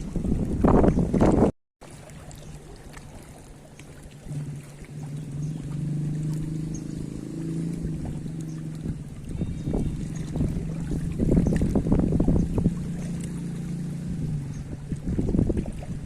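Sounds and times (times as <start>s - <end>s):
water: 0.0s - 16.0s
wind: 0.0s - 16.0s
engine humming: 3.4s - 15.4s.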